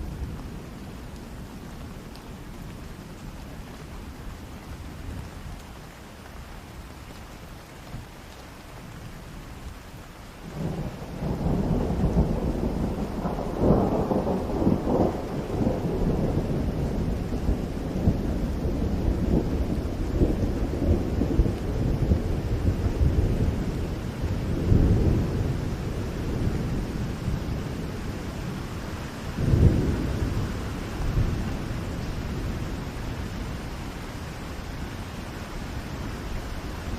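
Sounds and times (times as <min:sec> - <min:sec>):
steady rain: 0:00.0 - 0:36.9
thunder rumbling: 0:10.5 - 0:36.9.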